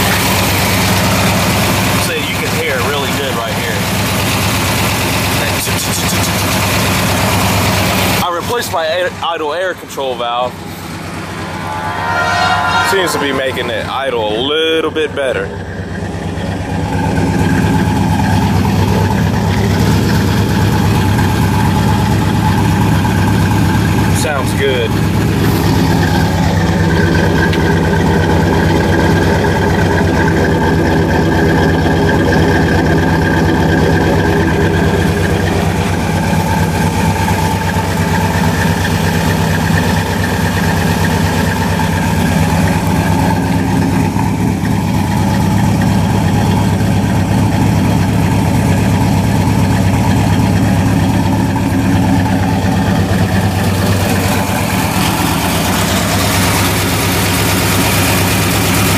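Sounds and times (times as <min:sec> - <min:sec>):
v eight engine idling: 0:00.0 - 0:58.9.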